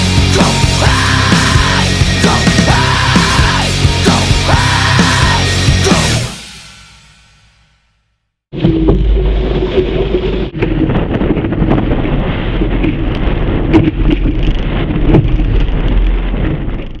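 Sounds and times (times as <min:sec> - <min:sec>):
water rushing and splashing: 0:08.5 - 0:16.7
wind buffeting microphone: 0:08.6 - 0:17.0.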